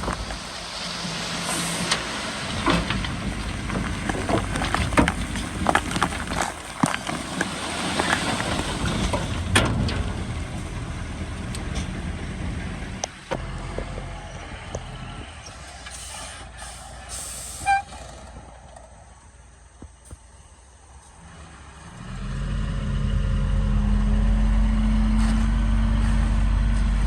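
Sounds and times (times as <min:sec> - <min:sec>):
irregular clanks and knocks: 0:00.0 - 0:15.0
heavy diesel machinery running: 0:00.0 - 0:19.9, 0:21.2 - 0:27.0.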